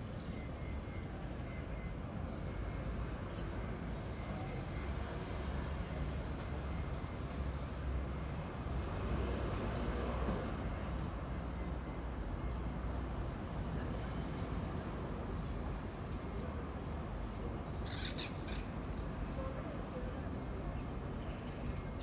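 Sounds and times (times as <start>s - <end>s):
distant traffic rumble: 8.0s - 22.0s.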